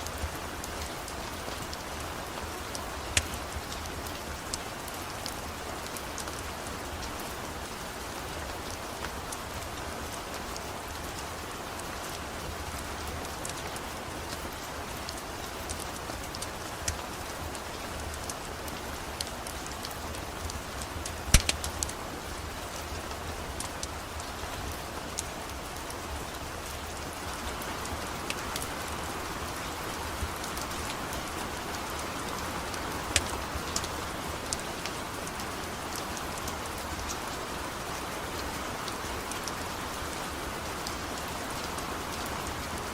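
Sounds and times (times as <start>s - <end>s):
wood fire crackling: 0.0s - 37.8s
steady rain falling: 0.0s - 42.9s.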